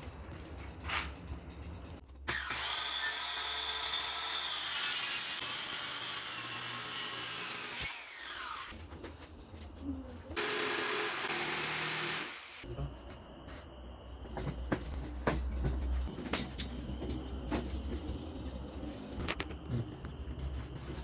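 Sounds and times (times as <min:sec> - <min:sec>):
electric power saw cutting wood: 0:02.3 - 0:08.7, 0:10.4 - 0:12.6.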